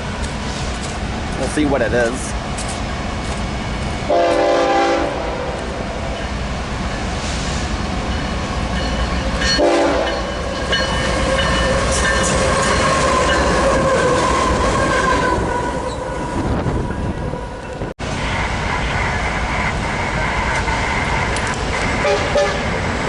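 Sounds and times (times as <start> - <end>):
diesel locomotive engine rumble: 0.0 - 23.0
train wheels on rails: 0.0 - 23.0
train horn blast: 4.1 - 5.5, 9.6 - 10.3, 22.0 - 22.7.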